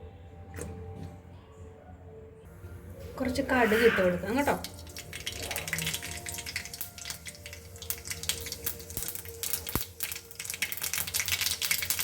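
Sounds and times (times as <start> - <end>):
seeds popping in hot oil: 4.4 - 12.0.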